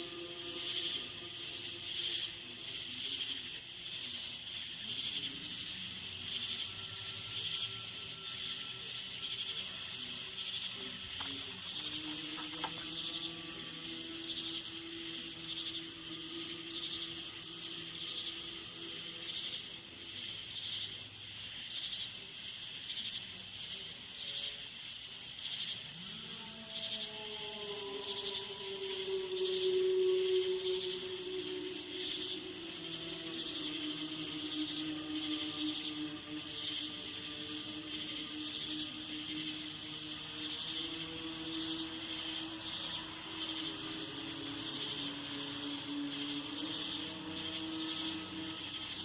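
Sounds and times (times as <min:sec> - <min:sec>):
insects chirring: 0:00.0 - 0:49.0
faint low droning tones: 0:05.1 - 0:20.2, 0:27.0 - 0:49.0.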